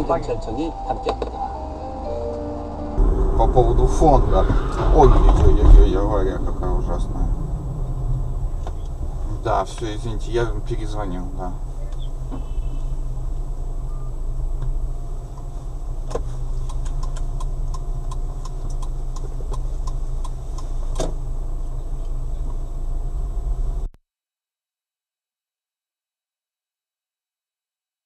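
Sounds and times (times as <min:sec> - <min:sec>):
car engine and road hum: 0:00.0 - 0:23.9
evenly spaced ticks: 0:16.6 - 0:20.7.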